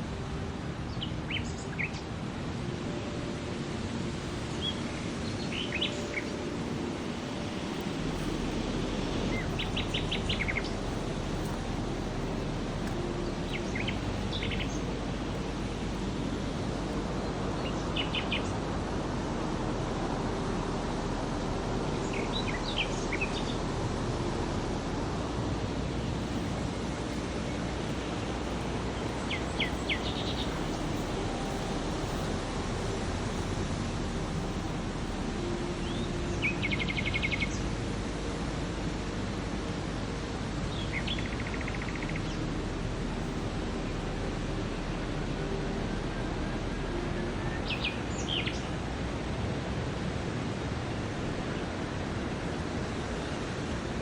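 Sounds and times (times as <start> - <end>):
steady rushing background noise: 0.0 - 54.0
songbird singing with trill: 0.2 - 3.2, 3.8 - 18.6, 24.9 - 37.6, 40.7 - 49.1.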